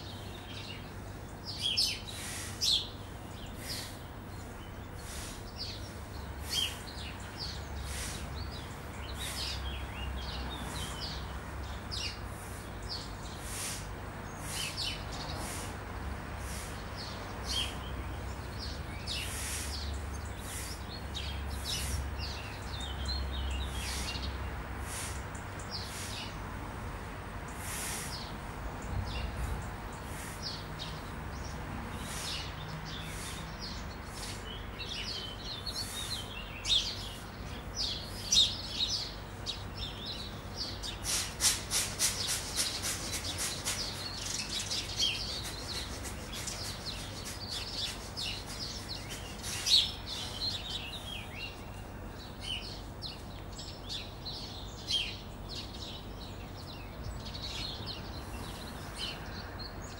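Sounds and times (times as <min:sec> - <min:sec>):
songbirds chirping and twittering: 0:00.0 - 0:59.9
steady low background noise: 0:00.0 - 0:59.9
fast rattling bird trill: 0:41.1 - 0:50.3.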